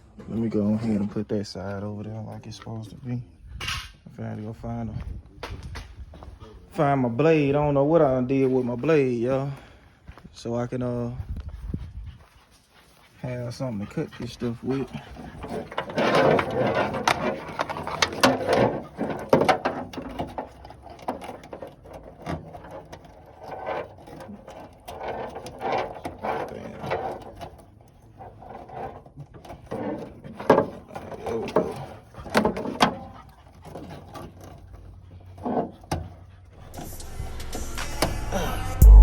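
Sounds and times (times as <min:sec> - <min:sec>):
objects clicking and rattling: 0:15.2 - 0:37.5.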